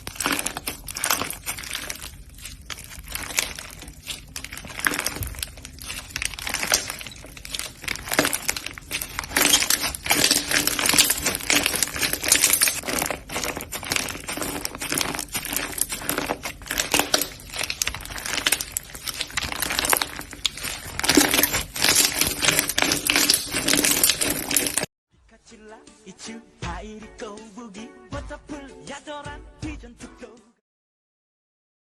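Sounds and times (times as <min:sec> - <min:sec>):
slime squeezed crackling pops: 0:00.0 - 0:24.9.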